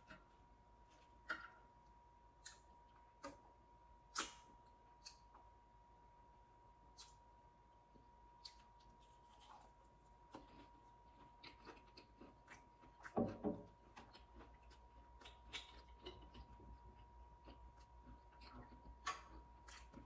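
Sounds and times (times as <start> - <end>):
chewing crunchy fried food: 8.4 - 20.0.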